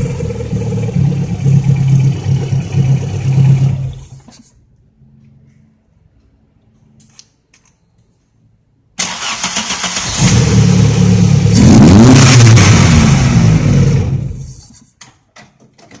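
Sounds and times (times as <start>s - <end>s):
car engine starting and revving: 0.0s - 4.1s, 9.0s - 14.5s.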